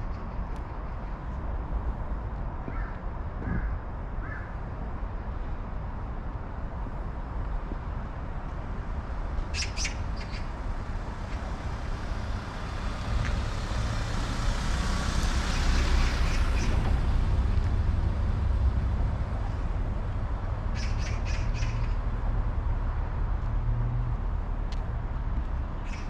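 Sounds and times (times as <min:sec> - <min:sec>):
bird squawks: 0:09.5 - 0:10.5, 0:20.7 - 0:22.0.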